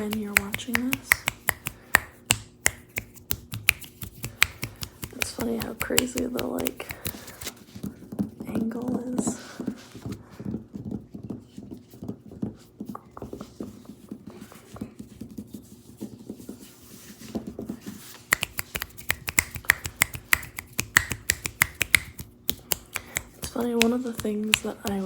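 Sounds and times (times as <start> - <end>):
fingers tapping on a tabletop: 18.3 - 25.0.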